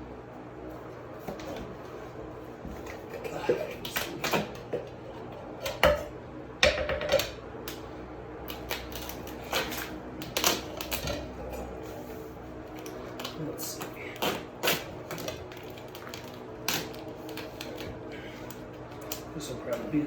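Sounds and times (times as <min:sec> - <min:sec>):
steady low hum: 0:00.0 - 0:20.0
hands handling ducting and tape: 0:08.4 - 0:11.3, 0:12.7 - 0:19.9.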